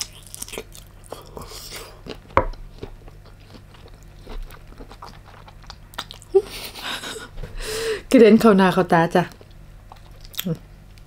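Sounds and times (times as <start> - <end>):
chewing prawn meat: 0.0 - 6.4, 9.4 - 10.6.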